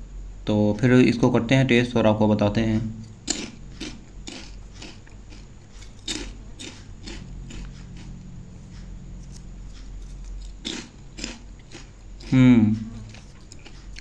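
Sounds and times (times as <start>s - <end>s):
snack crunching and chewing: 3.0s - 14.0s.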